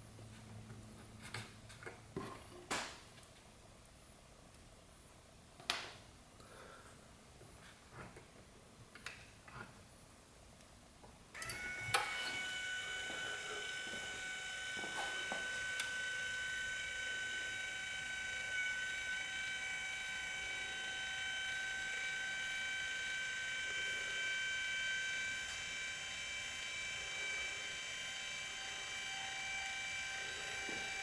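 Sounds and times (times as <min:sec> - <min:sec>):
electric actuator motor whine: 0:11.3 - 0:31.0.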